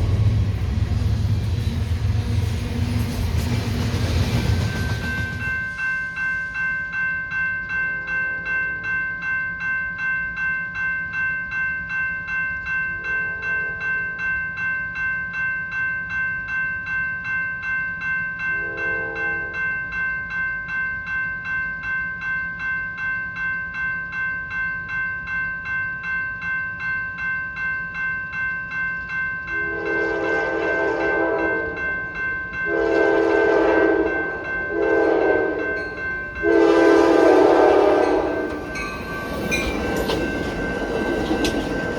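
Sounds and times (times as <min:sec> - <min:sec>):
railroad crossing bell ringing: 0:00.0 - 0:41.9
train horn blasts: 0:18.6 - 0:19.6, 0:29.5 - 0:31.8, 0:32.7 - 0:35.7, 0:36.4 - 0:38.5.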